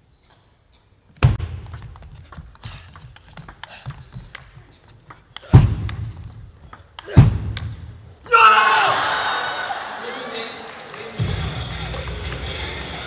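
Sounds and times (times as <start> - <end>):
sharp taps and claps: 1.4 - 7.8
crowd outburst: 8.3 - 13.0.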